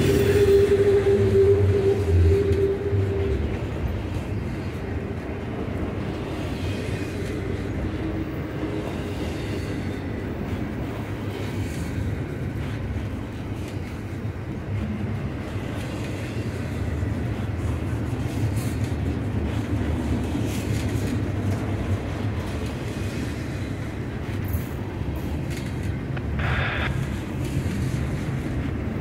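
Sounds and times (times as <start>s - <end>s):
freight train wheels rumbling: 0.0s - 29.0s
sharp clicks of train wheels: 0.0s - 29.0s.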